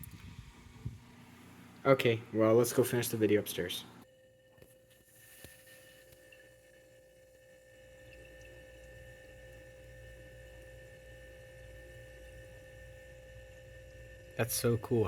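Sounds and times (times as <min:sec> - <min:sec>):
faint steady hum: 0:00.0 - 0:15.0
refrigerant trickling and gurgling: 0:04.9 - 0:15.0.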